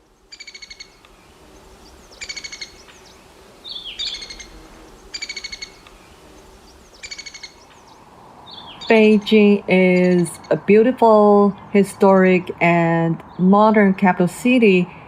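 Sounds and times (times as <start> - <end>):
songbird buzzy trills: 0.0 - 14.8
bird slurred call note: 3.7 - 7.7.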